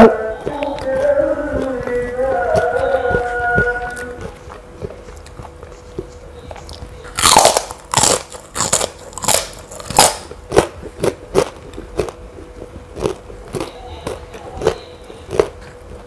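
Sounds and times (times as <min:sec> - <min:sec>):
crunchy cracker bite and chewing: 0:06.5 - 0:15.7.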